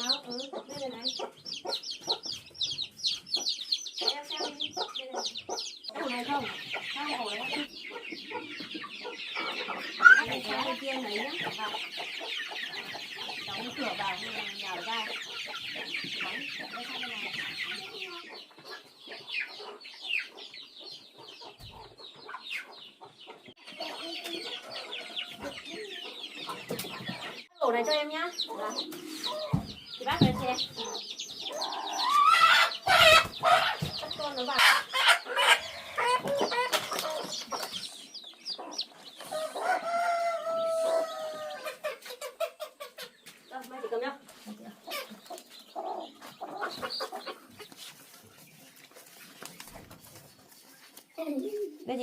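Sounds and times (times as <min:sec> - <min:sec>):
chickens clucking and cheeping: 0:00.0 - 0:52.0
long drawn-out chicken call: 0:39.2 - 0:41.8.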